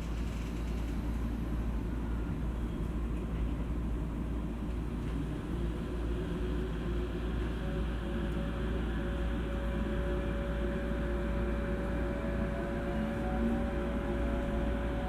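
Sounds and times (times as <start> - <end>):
train interior rumble: 0.0 - 15.0
train motor whine: 4.4 - 15.0.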